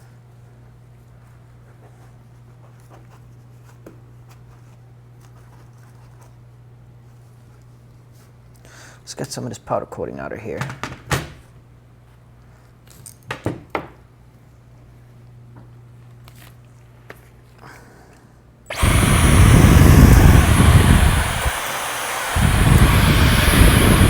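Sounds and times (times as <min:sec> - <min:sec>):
air tool rushing and whining: 0:18.7 - 0:24.0.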